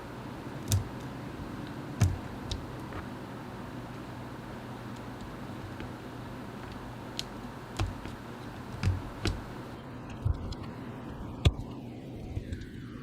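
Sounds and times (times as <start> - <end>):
steady low hum: 0.0 - 13.0
mechanical keyboard clicks: 0.6 - 1.1, 6.6 - 9.5.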